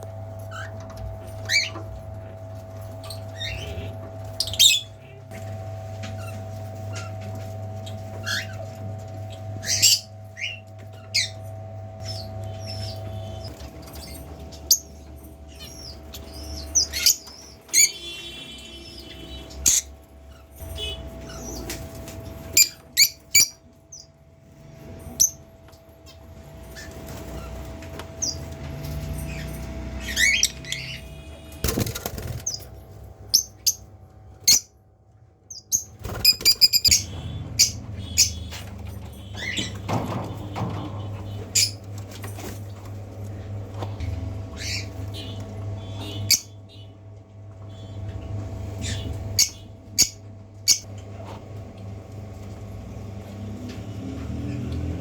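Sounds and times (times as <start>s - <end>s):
wings fluttering: 31.5s - 33.1s, 35.8s - 37.4s
lovebirds chirping: 35.5s - 38.6s.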